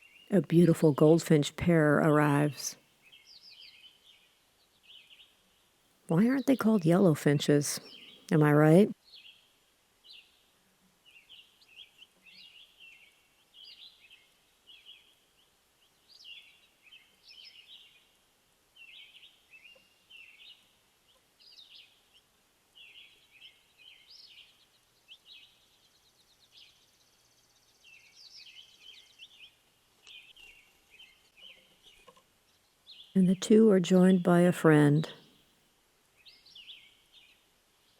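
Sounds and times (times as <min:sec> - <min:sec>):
faint songbird chirps and trills: 0:03.0 - 0:05.7, 0:09.0 - 0:18.2, 0:18.8 - 0:33.2, 0:36.2 - 0:37.9.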